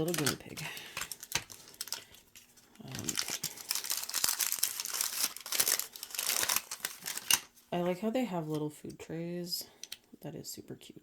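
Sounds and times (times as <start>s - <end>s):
plastic wrapping crinkling: 0.0s - 7.6s.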